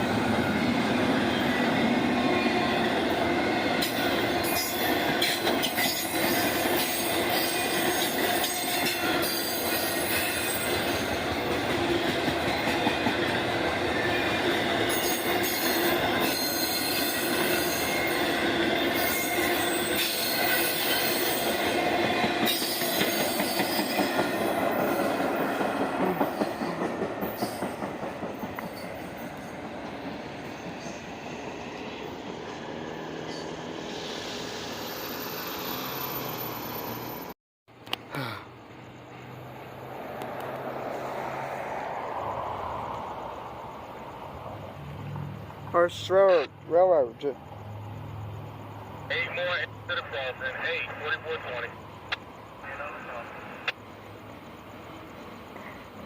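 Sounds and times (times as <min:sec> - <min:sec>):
train wheels squealing on rails: 0:00.0 - 0:37.4, 0:50.7 - 0:56.0
railroad cars rumbling and clattering: 0:00.0 - 0:37.9, 0:38.5 - 0:56.0.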